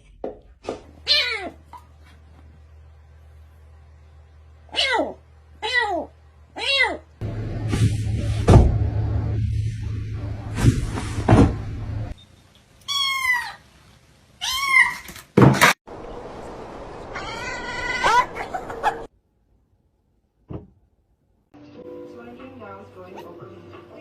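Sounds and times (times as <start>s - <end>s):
cat meowing: 4.8s - 7.0s, 12.9s - 13.6s.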